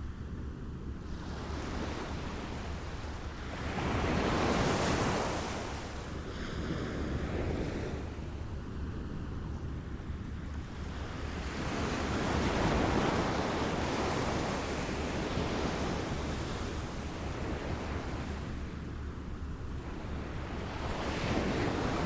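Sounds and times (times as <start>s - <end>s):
small waves lapping at shore: 1.0s - 8.5s, 10.6s - 18.8s, 19.4s - 22.0s.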